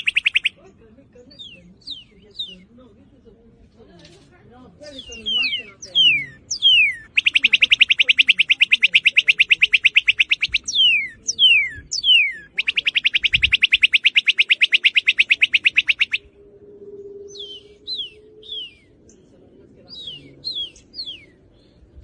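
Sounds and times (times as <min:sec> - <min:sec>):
bird down-slurred whistles: 0:00.0 - 0:00.5, 0:05.0 - 0:19.0
bird rapid trill: 0:00.0 - 0:00.6, 0:04.9 - 0:16.3.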